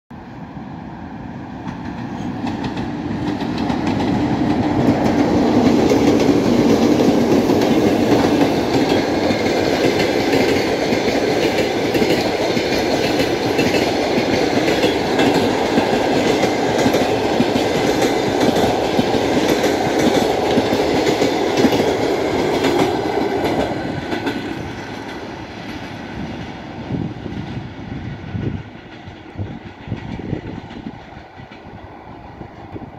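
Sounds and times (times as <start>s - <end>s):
train wheels clattering: 1.6s - 26.6s, 27.2s - 32.9s.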